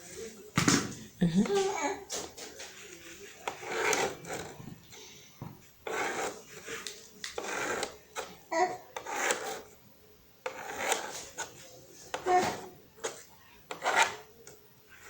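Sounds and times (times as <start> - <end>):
pen scribbling on paper: 2.7 - 4.6, 5.8 - 7.9, 9.0 - 9.7, 10.5 - 11.5, 13.1 - 14.3.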